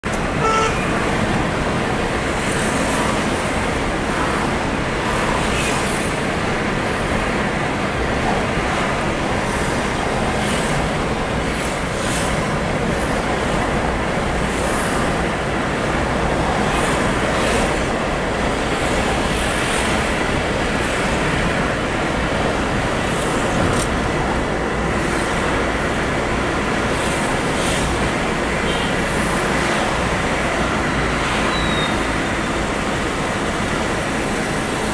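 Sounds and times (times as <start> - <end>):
road noise of vehicles: 0.0 - 34.9.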